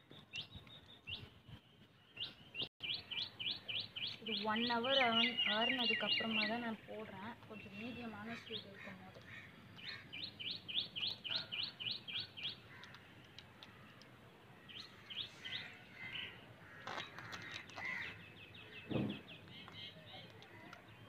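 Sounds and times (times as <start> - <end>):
small bird chirping: 0.1 - 21.0
dull thump: 18.9 - 19.2.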